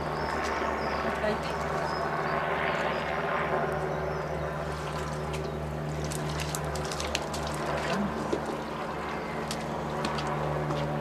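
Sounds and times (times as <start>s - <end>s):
pond pump humming: 0.0s - 11.0s
water trickling and splashing: 4.6s - 11.0s.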